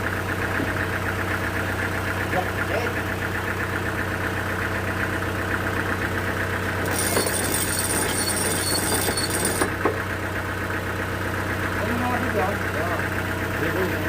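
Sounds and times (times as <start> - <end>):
sawmill engine knocking: 0.1 - 14.0.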